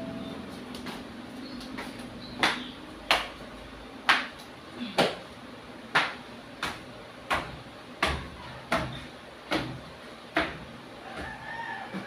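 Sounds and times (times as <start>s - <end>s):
sharp knocks with dull thud: 5.9s - 11.4s.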